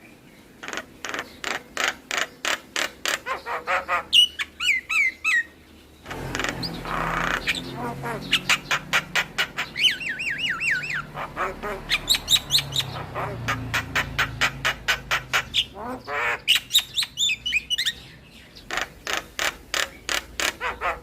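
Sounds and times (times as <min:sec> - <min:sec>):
bird squawk: 0:00.6 - 0:21.0
whistled bird notes: 0:09.6 - 0:11.1.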